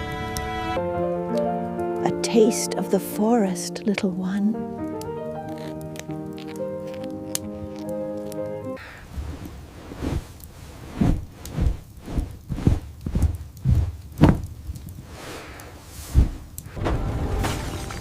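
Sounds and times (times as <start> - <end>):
music: 0.0 - 8.8, 16.8 - 18.0
dull heavy thumps: 12.7 - 14.6.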